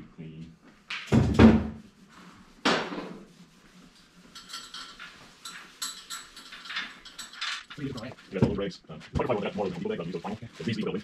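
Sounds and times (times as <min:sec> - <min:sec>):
light metal rattling and clinking: 0:04.3 - 0:08.3
metal parts clanking: 0:04.4 - 0:08.2.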